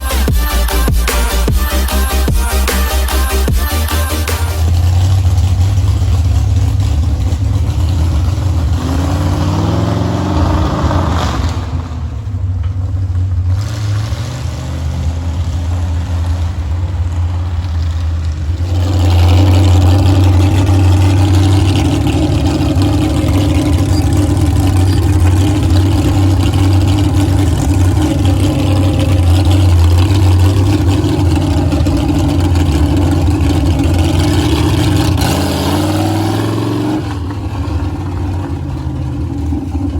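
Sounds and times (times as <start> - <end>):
monster truck engine revving: 0.0 - 39.9.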